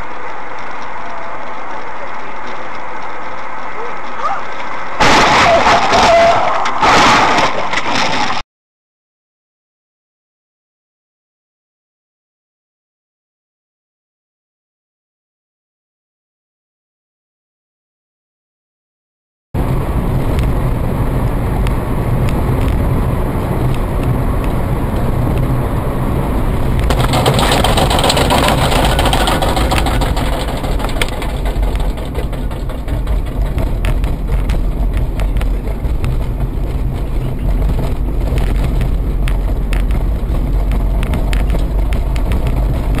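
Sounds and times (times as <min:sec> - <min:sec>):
vehicle engine and road noise: 0:00.0 - 0:08.4, 0:19.6 - 0:43.0
rushing noise: 0:19.6 - 0:43.0
small rattles: 0:26.8 - 0:43.0.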